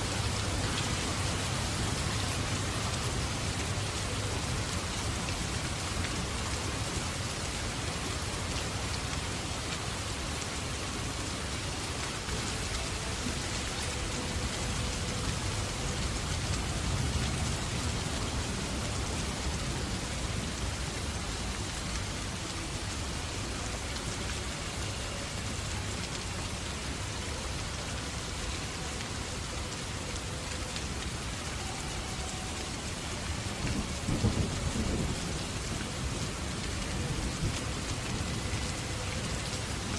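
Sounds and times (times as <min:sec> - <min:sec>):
steady rain falling: 0:00.0 - 0:39.9
thunder rumble: 0:33.6 - 0:38.0.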